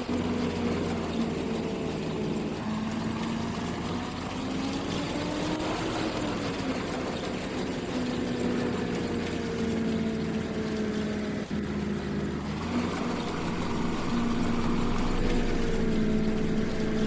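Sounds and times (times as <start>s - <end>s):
combine harvester humming: 0.0s - 17.0s.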